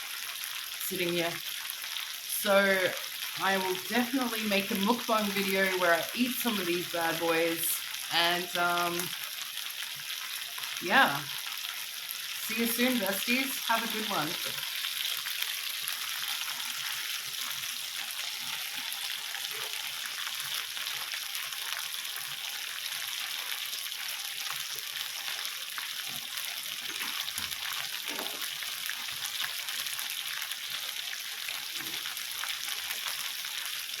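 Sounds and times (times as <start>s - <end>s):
chicken kebabs sizzling on grill: 0.0s - 34.0s.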